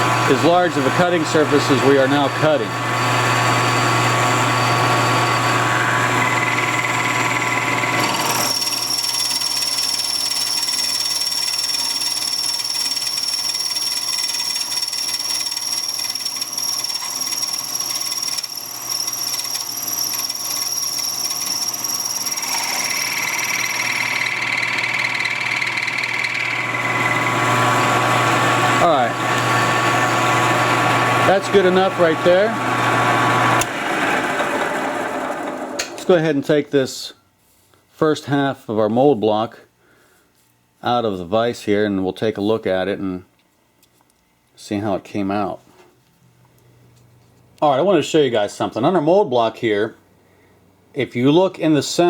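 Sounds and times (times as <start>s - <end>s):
high steady cutting whine: 0.0s - 33.7s
milling machine hum: 0.0s - 36.0s.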